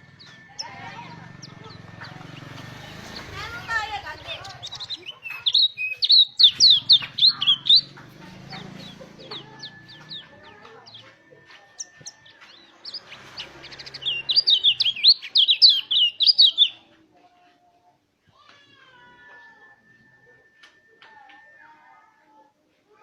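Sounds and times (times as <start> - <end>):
bird singing high sharp chirps: 0.0 - 11.1, 11.8 - 16.9.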